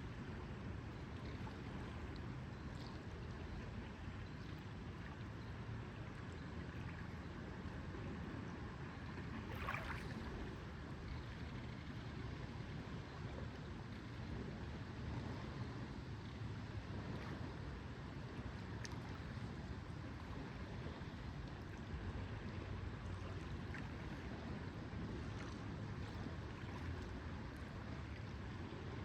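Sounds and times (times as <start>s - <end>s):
wind: 0.0s - 29.0s
lake water lapping: 9.4s - 10.7s.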